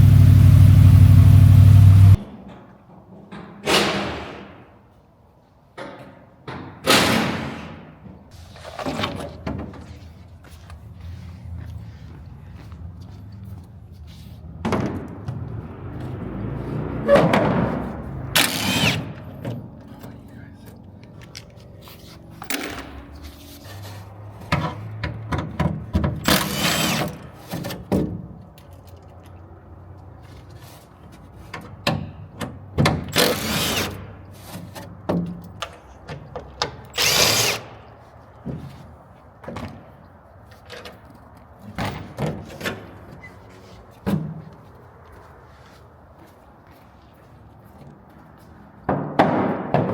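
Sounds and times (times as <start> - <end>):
tools and metal parts clattering: 21.0 - 23.9
power drill running: 37.0 - 37.6.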